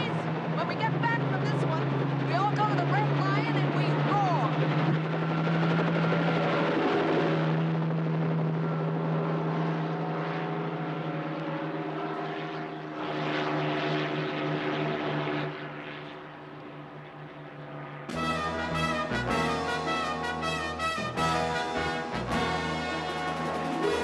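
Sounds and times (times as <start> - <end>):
propeller aircraft engines droning: 0.0 - 24.0
brass music: 18.1 - 24.0.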